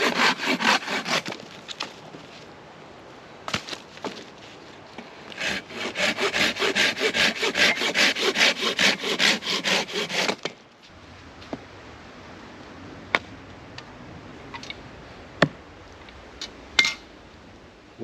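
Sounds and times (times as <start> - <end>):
hand saw cutting wood: 0.0 - 1.4, 5.3 - 10.5.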